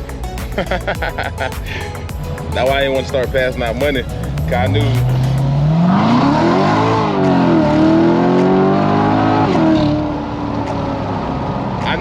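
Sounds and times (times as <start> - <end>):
car engine accelerating hard: 3.8 - 12.0.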